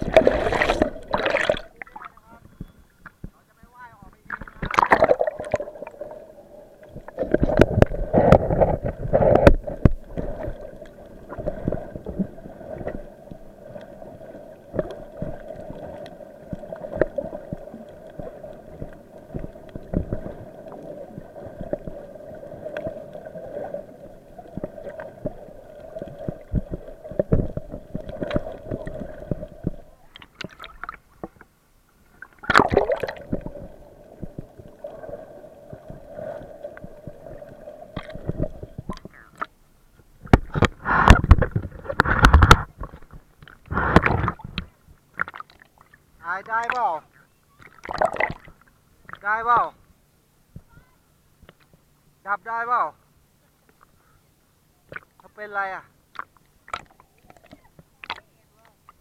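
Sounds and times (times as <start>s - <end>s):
bubbling and splashing: 0.0s - 2.3s, 4.2s - 31.3s, 32.1s - 39.6s, 40.2s - 46.0s, 47.6s - 49.2s, 56.2s - 58.3s
boat engine hum underwater: 0.0s - 49.2s.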